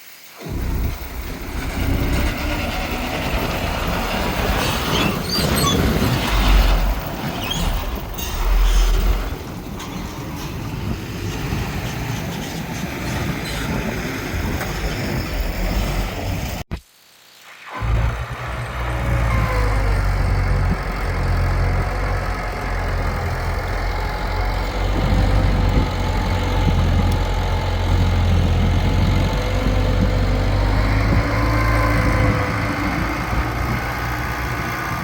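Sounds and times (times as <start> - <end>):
metallic squeaks and clanks: 0.4 - 14.0
diesel engine rumbling: 0.4 - 16.7, 17.7 - 35.0.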